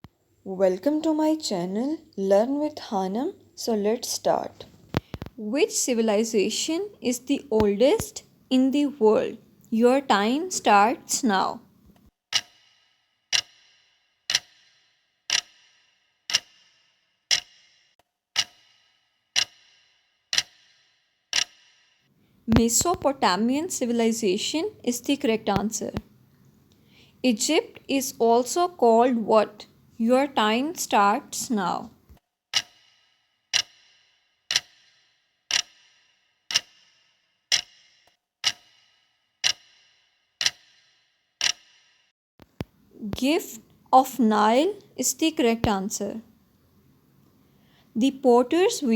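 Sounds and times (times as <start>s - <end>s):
clock ticking: 4.9s - 11.6s, 12.3s - 12.7s, 13.3s - 13.6s, 14.3s - 14.7s, 15.3s - 15.7s, 16.3s - 16.6s, 17.3s - 17.7s, 18.3s - 21.7s, 22.5s - 32.9s, 33.5s - 33.9s, 34.5s - 41.8s
clock ticking with metallic ring: 12.3s - 26.0s, 32.5s - 42.8s.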